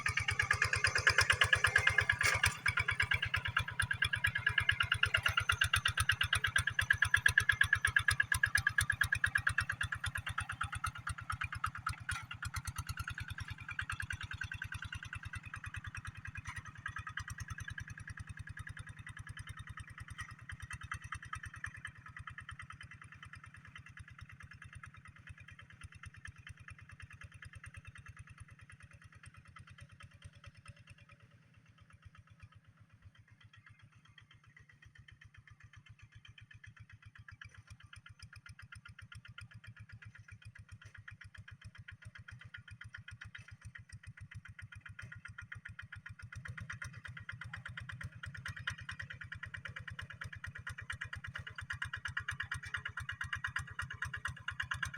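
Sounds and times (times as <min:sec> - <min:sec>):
tractor diesel engine running: 0:00.0 - 0:23.2, 0:39.8 - 0:54.9.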